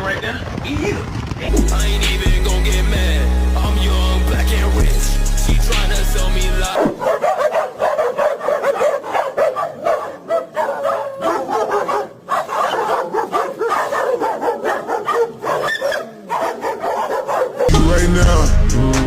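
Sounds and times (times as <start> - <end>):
dog wavering calls: 6.8 - 17.7.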